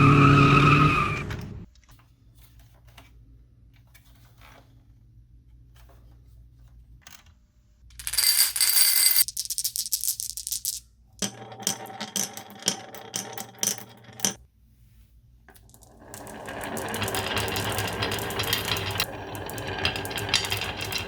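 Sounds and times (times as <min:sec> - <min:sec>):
marbles rolling down wooden run: 0:08.0 - 0:14.4, 0:15.7 - 0:21.0.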